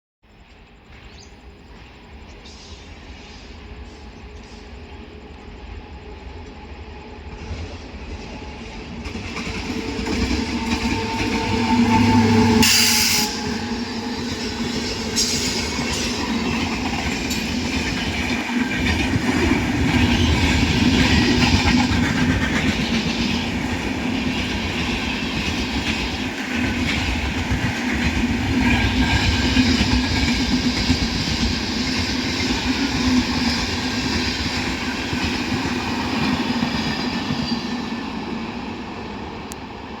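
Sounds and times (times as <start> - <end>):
train rumbling over rails: 0.3 - 40.0
train horn tone: 9.7 - 16.3.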